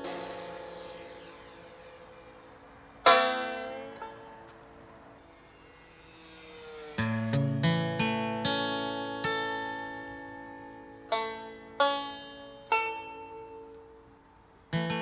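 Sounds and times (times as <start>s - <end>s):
acoustic guitar chords: 7.0s - 13.7s.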